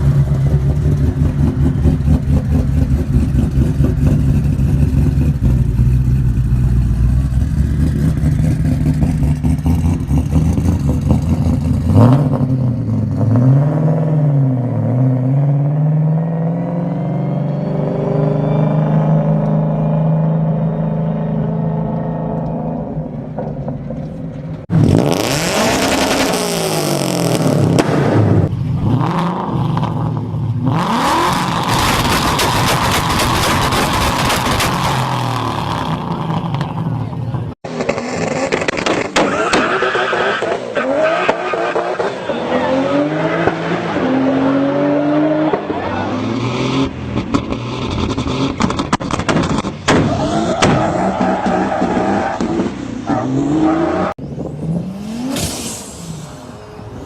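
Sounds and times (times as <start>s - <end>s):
car engine revving hard: 24.7s - 36.8s, 37.7s - 57.0s
exhaust crackling pops: 31.6s - 36.8s, 47.2s - 50.8s.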